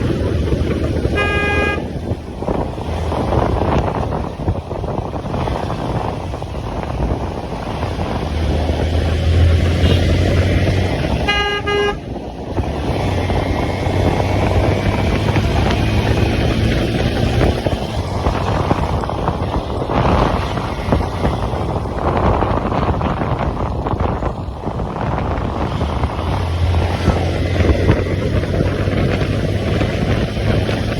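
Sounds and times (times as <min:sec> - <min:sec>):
motorcycle engine hum: 0:00.0 - 0:30.9
wind noise on microphone: 0:00.0 - 0:30.9
vehicle horn: 0:00.9 - 0:02.1, 0:09.8 - 0:12.3.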